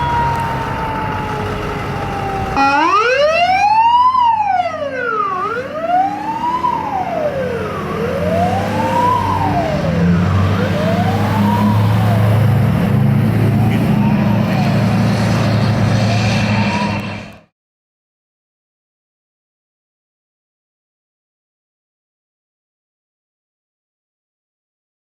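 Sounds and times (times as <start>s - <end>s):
fire truck siren wailing: 0.0s - 17.5s
truck diesel engine rumbling: 0.0s - 17.5s.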